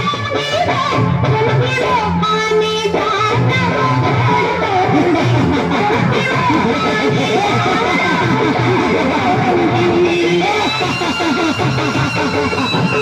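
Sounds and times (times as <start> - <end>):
loud dance music: 3.0 - 13.0.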